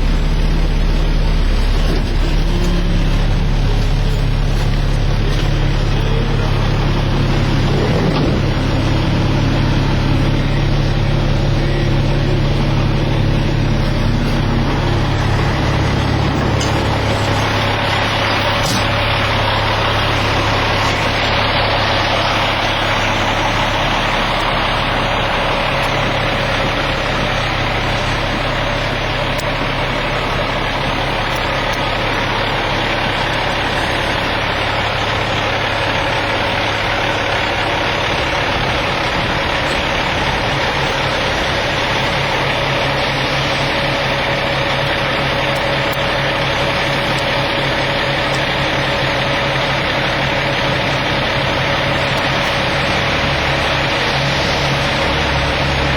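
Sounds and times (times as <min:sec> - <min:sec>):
diesel truck engine idling: 0:00.0 - 0:55.9.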